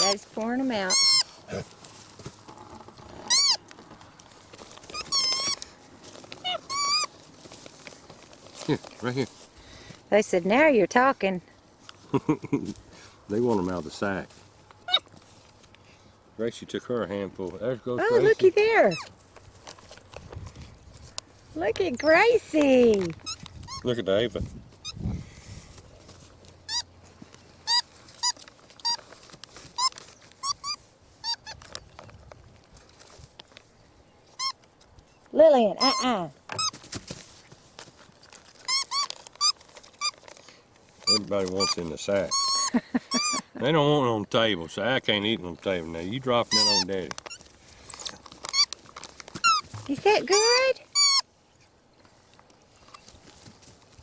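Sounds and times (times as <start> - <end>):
monkeys squealing: 0.0 - 1.7, 3.2 - 3.6, 4.9 - 5.6, 6.4 - 7.1, 14.8 - 15.2, 18.0 - 19.1, 26.6 - 26.9, 27.6 - 29.1, 29.8 - 31.7, 35.8 - 36.8, 38.7 - 40.1, 41.0 - 43.6, 46.5 - 48.7, 49.4 - 51.3.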